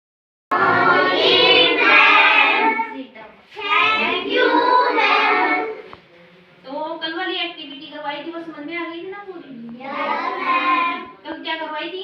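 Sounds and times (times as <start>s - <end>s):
young voices singing: 0.5s - 6.0s, 9.7s - 11.2s.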